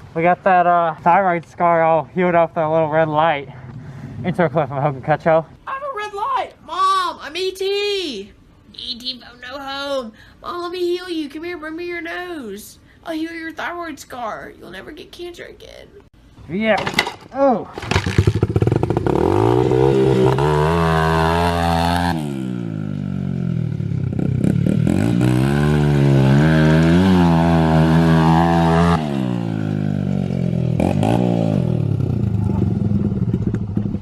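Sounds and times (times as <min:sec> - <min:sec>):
dirt bike engine revving: 0:17.8 - 0:34.0.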